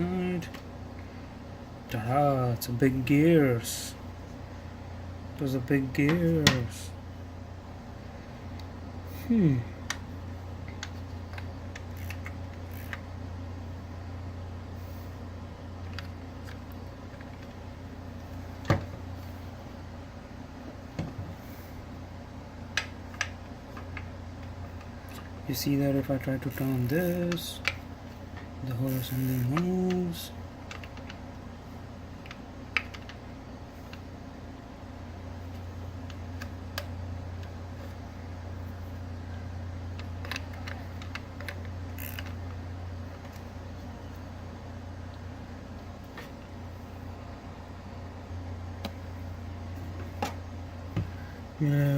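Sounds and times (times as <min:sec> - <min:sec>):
steady low hum: 0:00.0 - 0:51.9
small clicks of handled parts: 0:10.7 - 0:13.0, 0:39.9 - 0:42.5
clicks and knocks of handled parts: 0:29.3 - 0:31.2, 0:39.9 - 0:43.5.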